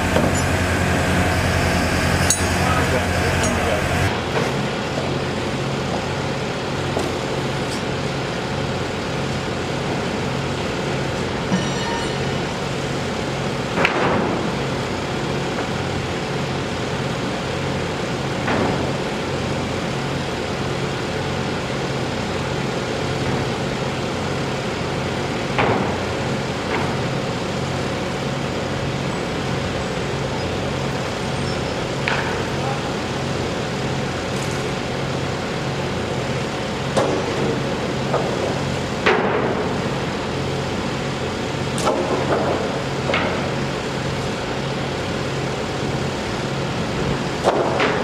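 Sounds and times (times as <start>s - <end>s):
sharp metal knocks: 0.0s - 4.1s
engine running with pulsing hum: 0.0s - 11.6s
machinery and traffic noise: 0.0s - 48.0s.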